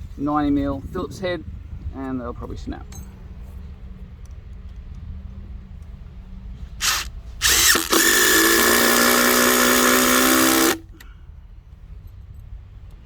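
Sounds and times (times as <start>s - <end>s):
impact driver driving a screw: 6.8s - 10.8s.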